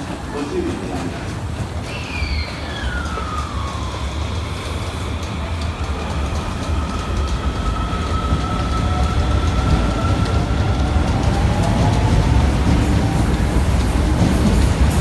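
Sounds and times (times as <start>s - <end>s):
subway car running rumble: 0.0s - 15.0s
subway inverter whine: 0.0s - 15.0s.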